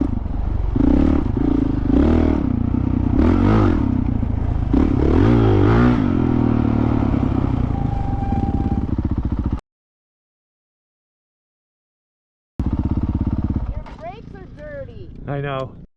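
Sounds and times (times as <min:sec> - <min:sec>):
dirt bike engine revving: 0:00.0 - 0:09.6, 0:12.6 - 0:14.9.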